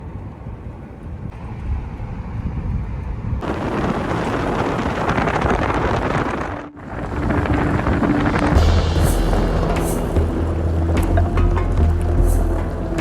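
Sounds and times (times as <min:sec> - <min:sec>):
wind buffeting microphone: 0:00.0 - 0:13.0
low rumble: 0:01.2 - 0:13.0.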